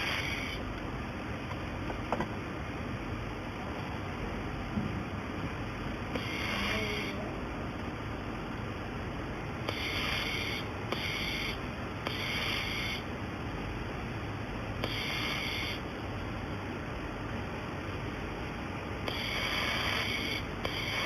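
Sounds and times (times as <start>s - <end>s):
steady machine hum: 0.0s - 21.0s
welding hiss bursts with clicks: 6.1s - 7.1s, 9.6s - 13.0s, 14.8s - 15.8s, 19.0s - 21.0s.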